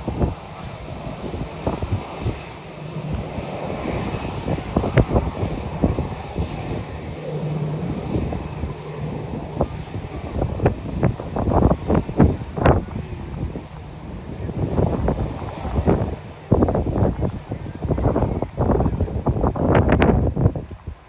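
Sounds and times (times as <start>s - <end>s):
jet engine rumble: 0.0s - 21.0s
wind buffeting microphone: 0.0s - 21.0s.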